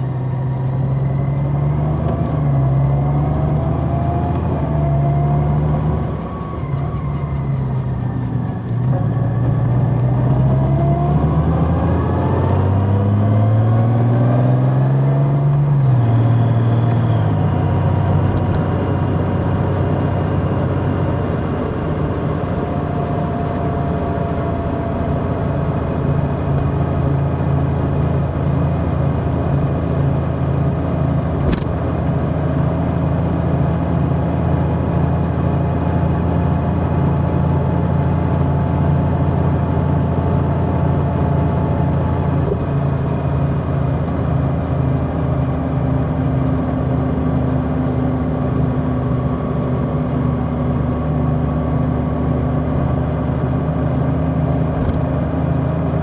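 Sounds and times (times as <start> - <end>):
motorcycle engine: 16.0 - 56.0.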